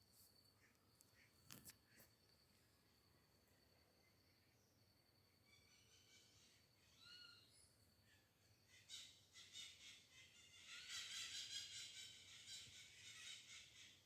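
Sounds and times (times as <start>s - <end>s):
high chattering bird calls: 5.5s - 14.0s.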